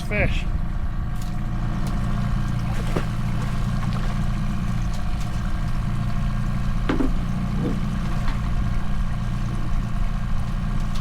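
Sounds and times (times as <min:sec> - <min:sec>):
outboard motor droning: 0:00.0 - 0:11.0
light knocks: 0:06.9 - 0:08.4.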